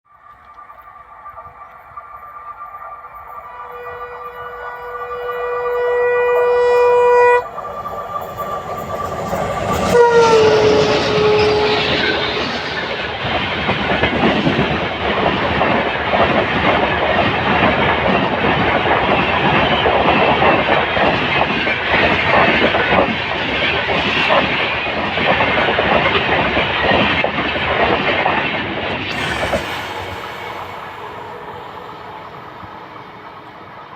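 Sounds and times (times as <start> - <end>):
train horn: 3.4 - 13.1, 29.1 - 33.9.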